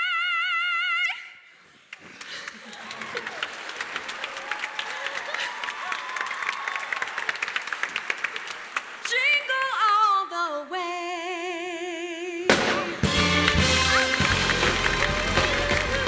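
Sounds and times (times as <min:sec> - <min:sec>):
audience applause: 0:02.2 - 0:09.2, 0:13.0 - 0:16.0
big band playing: 0:12.5 - 0:16.0.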